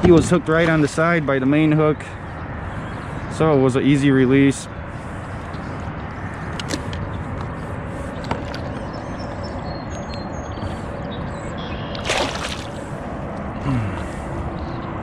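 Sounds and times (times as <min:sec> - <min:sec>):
water splash: 0:12.0 - 0:12.9
water sloshing around kayak: 0:12.0 - 0:13.0.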